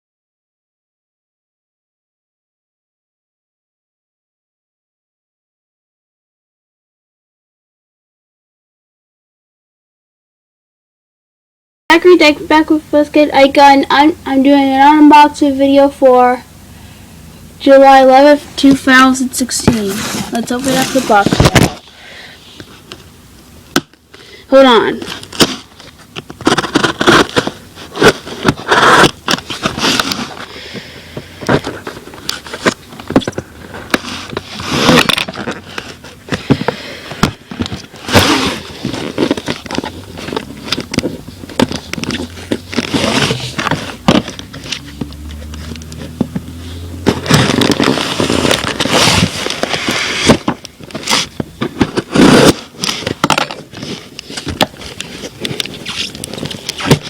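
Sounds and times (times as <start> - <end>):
cardboard scraping and rustling: 17.6 - 21.8, 24.6 - 57.0.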